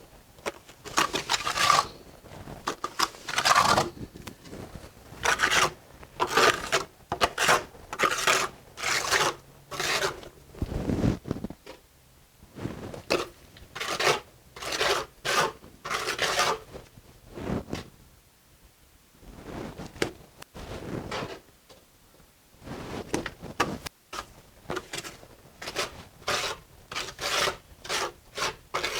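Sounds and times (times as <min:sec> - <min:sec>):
trowel scraping mortar on brick: 0:00.8 - 0:11.0, 0:13.0 - 0:16.7, 0:24.1 - 0:28.9.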